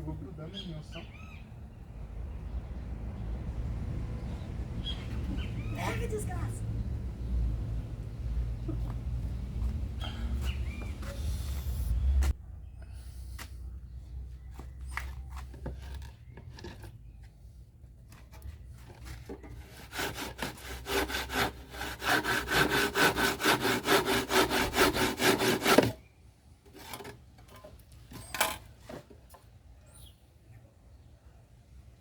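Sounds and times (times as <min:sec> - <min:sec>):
hand saw cutting wood: 0:18.4 - 0:26.0.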